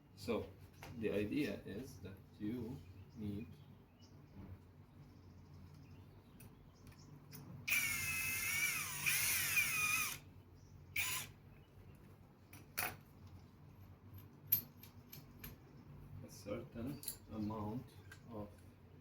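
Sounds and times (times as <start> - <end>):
cordless drill whining: 7.7 - 10.3, 11.0 - 11.4.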